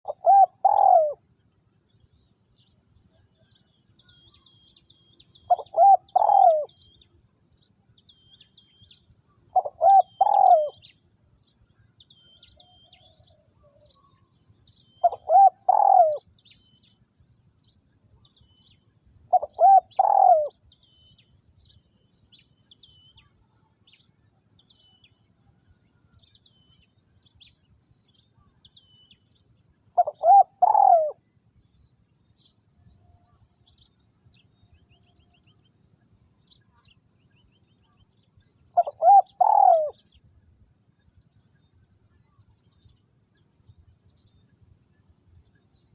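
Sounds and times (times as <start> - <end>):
dove cooing: 0.0 - 1.2, 5.5 - 6.8, 9.5 - 10.9, 15.0 - 16.3, 19.3 - 20.6, 30.0 - 31.2, 38.8 - 40.1
small birds chirping: 0.0 - 45.9.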